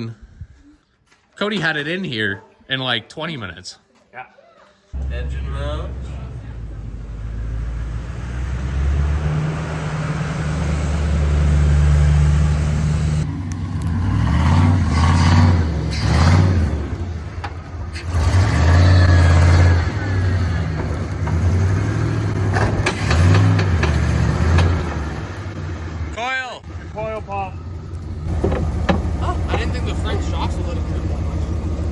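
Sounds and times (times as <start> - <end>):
vehicle engine revving: 5.0 - 31.9.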